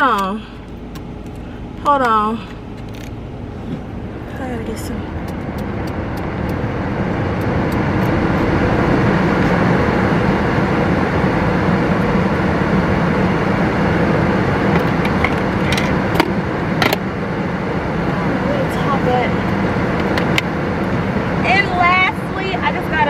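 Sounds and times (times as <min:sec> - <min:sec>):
motor humming: 0:00.0 - 0:23.0
sharp clicks: 0:04.9 - 0:08.2.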